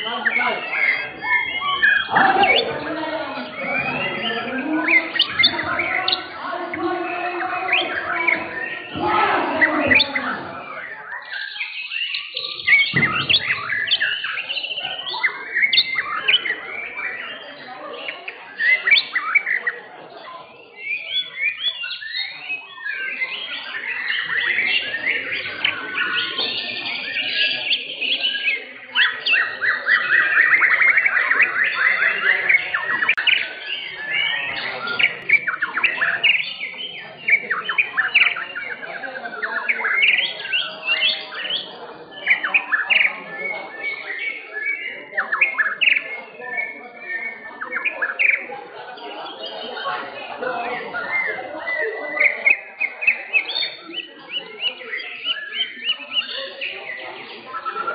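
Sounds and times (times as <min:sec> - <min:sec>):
rapid bird trill: 0:00.0 - 0:57.9
songbirds singing whistled phrases: 0:00.0 - 0:57.9.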